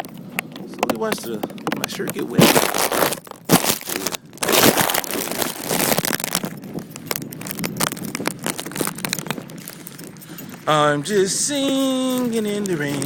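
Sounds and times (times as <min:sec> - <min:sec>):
plastic wrap crinkling: 0:01.9 - 0:10.2.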